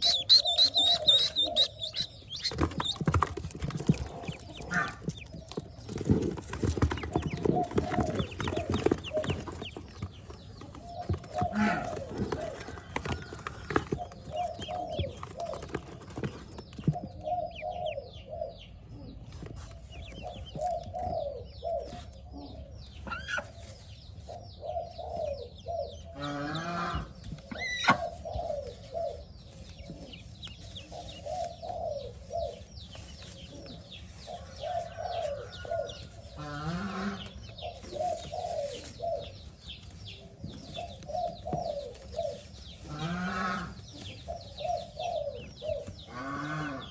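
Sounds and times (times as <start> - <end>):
lower bird calls: 0.0 - 3.0
ducklings peeping: 0.0 - 46.9.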